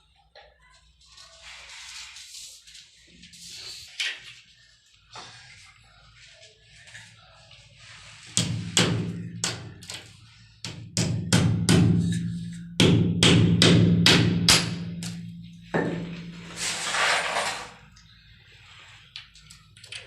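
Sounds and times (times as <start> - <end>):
hissing or scraping noise: 16.0 - 18.0.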